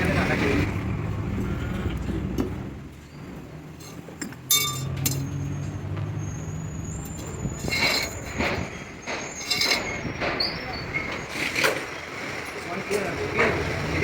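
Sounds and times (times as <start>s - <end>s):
metal tools clinking and clanking: 3.7s - 5.8s, 7.0s - 11.9s.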